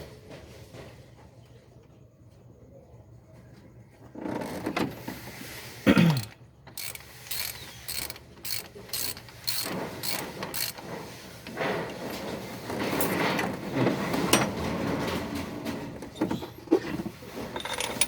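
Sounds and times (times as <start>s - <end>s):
ratchet wrench clicking: 6.2s - 10.8s.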